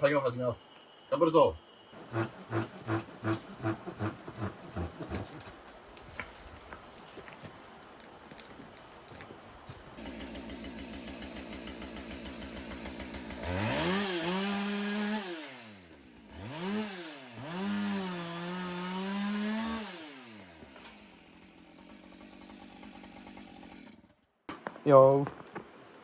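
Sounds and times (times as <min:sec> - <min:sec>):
two-stroke chainsaw revving: 0:02.0 - 0:05.1, 0:10.0 - 0:24.2.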